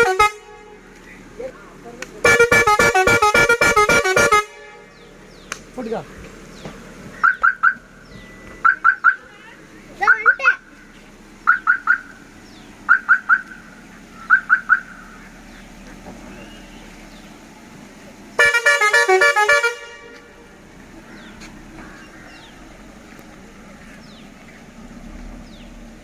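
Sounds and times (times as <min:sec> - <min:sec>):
musical air horn beeps: 0:00.0 - 0:00.8, 0:02.2 - 0:05.0, 0:18.4 - 0:20.3
horn playing rapid tune: 0:00.0 - 0:00.9, 0:02.2 - 0:05.0, 0:18.4 - 0:20.4.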